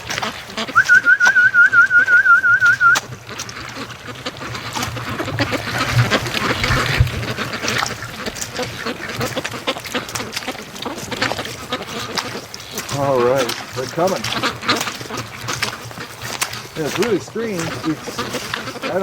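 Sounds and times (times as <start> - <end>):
ducks quacking: 0.0 - 19.0
warbling whistled call: 0.6 - 3.1.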